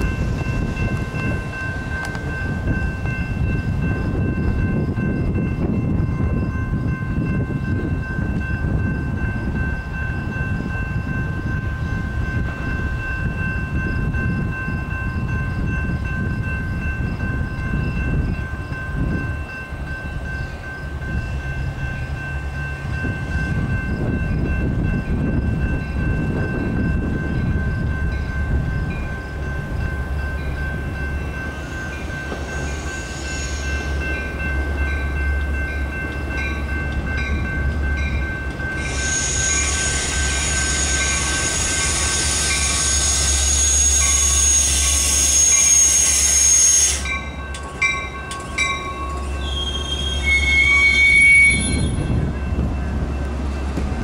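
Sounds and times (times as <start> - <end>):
train wheels and brakes rumbling: 0.0 - 54.0
brake squeal: 32.4 - 34.0, 38.8 - 47.2, 48.5 - 52.1.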